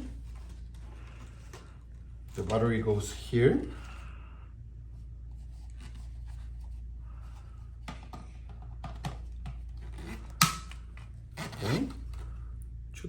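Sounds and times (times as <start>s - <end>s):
plastic handling noise: 0.0s - 3.8s
low steady hum: 0.0s - 13.0s.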